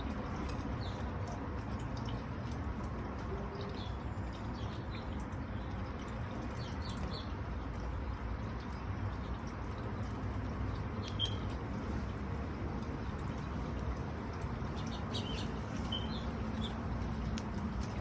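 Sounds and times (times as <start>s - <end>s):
background rush with low rumble: 4.1s - 18.0s
high bird chirps: 14.8s - 16.8s.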